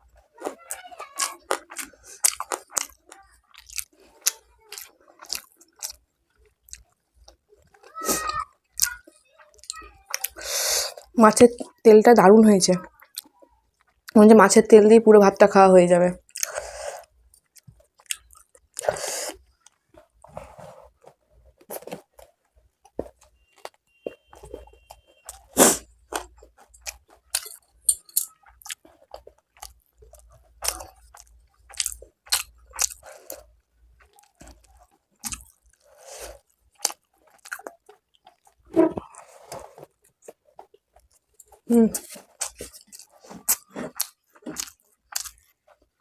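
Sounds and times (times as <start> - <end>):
chewing and crunching food: 0.0 - 11.8, 12.8 - 14.2, 16.2 - 46.0
wet mouth clicks: 16.3 - 16.6.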